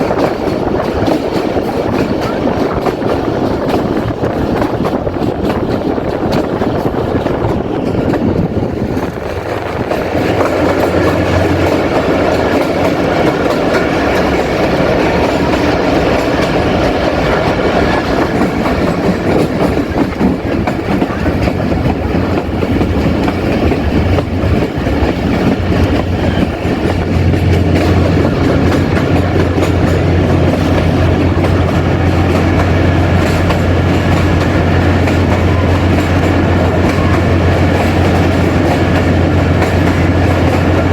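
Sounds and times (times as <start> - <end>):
train wheels on rails: 0.0 - 40.9.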